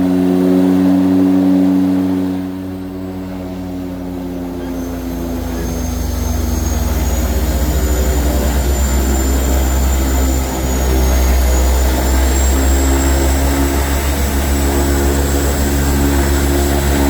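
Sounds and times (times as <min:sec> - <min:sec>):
high turbine whine: 0:00.0 - 0:17.0
propeller engines droning: 0:00.0 - 0:17.0.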